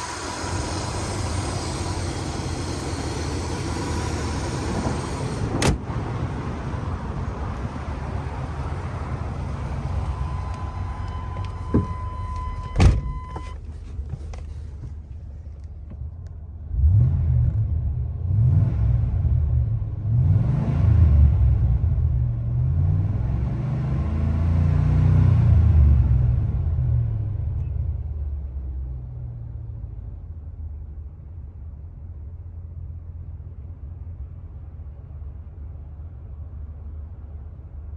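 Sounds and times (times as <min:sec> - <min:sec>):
pickup engine revving: 0:00.0 - 0:12.4.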